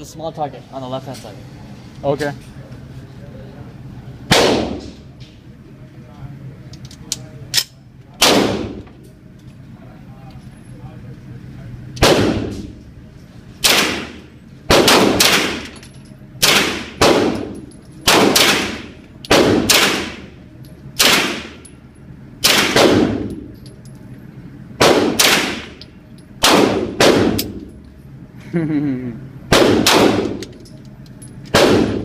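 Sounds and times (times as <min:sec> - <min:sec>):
gunshots with ringing echo: 0:04.3 - 0:04.8, 0:12.0 - 0:12.7, 0:13.6 - 0:15.6, 0:16.4 - 0:17.5, 0:18.1 - 0:20.3, 0:26.4 - 0:27.5, 0:29.5 - 0:30.4, 0:31.5 - 0:32.0.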